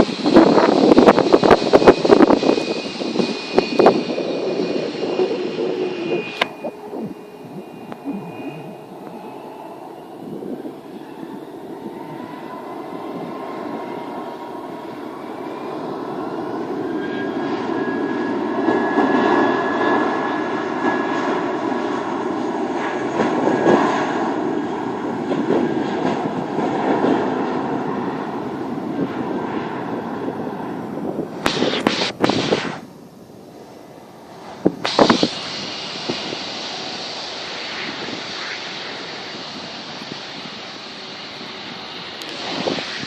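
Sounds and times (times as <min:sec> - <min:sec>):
aeroplane engine taking off: 0:00.0 - 0:43.0
short loud noise bursts: 0:31.4 - 0:32.9, 0:34.8 - 0:40.0.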